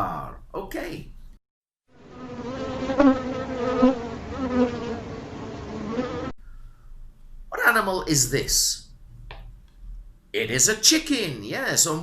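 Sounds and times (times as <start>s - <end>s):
honeybees buzzing: 1.9s - 6.4s.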